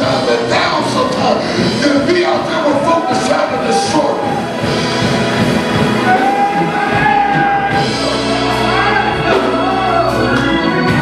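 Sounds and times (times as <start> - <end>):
organ chords: 0.0 - 11.0
person singing: 6.0 - 11.0.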